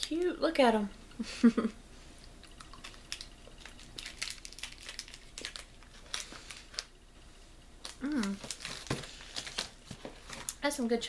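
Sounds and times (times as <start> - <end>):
candy wrappers crinkling: 2.4 - 7.0, 7.8 - 11.0.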